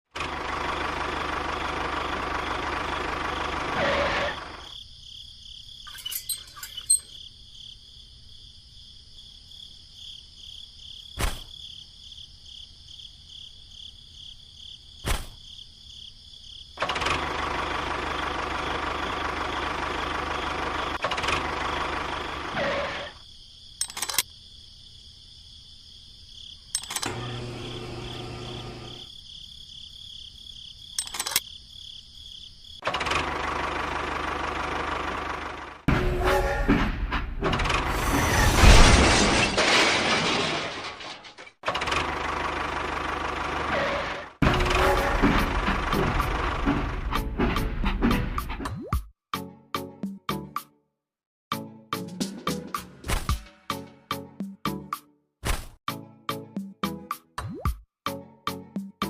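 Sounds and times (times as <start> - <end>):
high insect-like chirring: 4.6 - 7.9
small electric motor running: 27.1 - 29.1.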